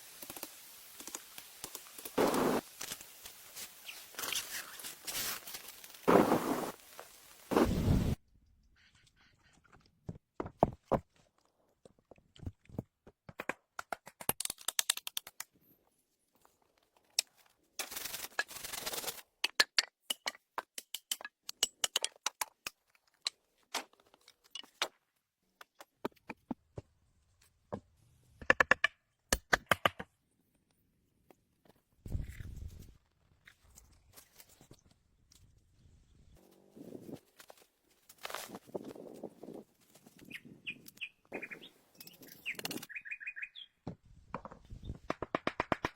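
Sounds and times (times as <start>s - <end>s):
scraping or tearing: 2.2s - 6.8s.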